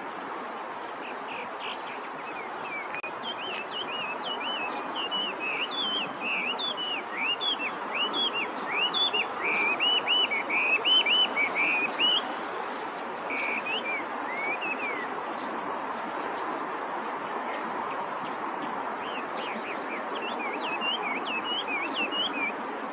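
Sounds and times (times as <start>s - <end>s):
steady background noise: 0.0s - 22.9s
bird singing whistled phrases: 1.3s - 12.2s, 13.3s - 15.0s, 19.4s - 22.6s.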